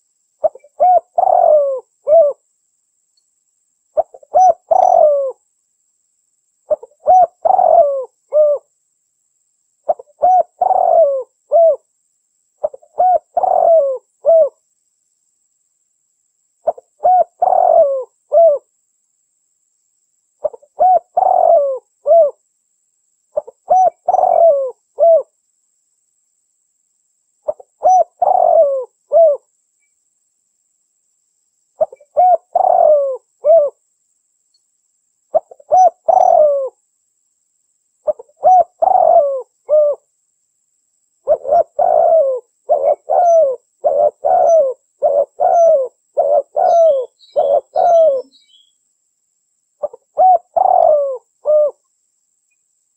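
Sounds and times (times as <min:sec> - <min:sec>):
dove cooing: 0:00.4 - 0:02.4, 0:04.0 - 0:05.4, 0:06.7 - 0:08.7, 0:09.9 - 0:11.8, 0:12.6 - 0:14.6, 0:16.6 - 0:18.7, 0:20.4 - 0:22.4, 0:23.4 - 0:25.3, 0:27.4 - 0:29.5, 0:31.8 - 0:33.8, 0:35.3 - 0:36.8, 0:38.0 - 0:40.1, 0:41.2 - 0:48.7, 0:49.8 - 0:51.8.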